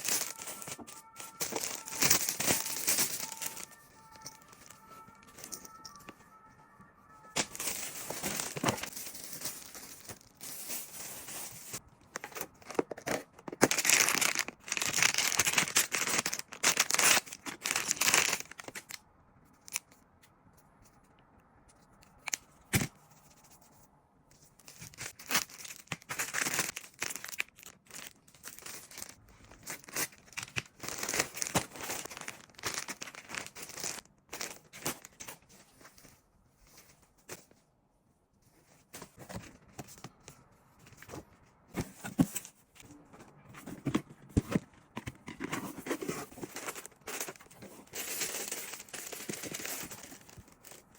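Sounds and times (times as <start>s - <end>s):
packaging tearing and crinkling: 0.0s - 6.0s, 7.3s - 9.0s, 12.2s - 19.0s, 24.8s - 35.2s.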